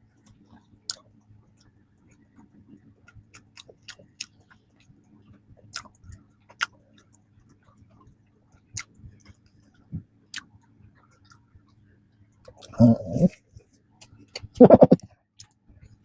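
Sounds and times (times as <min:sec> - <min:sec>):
chewing soft bread: 0:00.0 - 0:16.0
wet mouth clicks and smacks: 0:05.7 - 0:06.8.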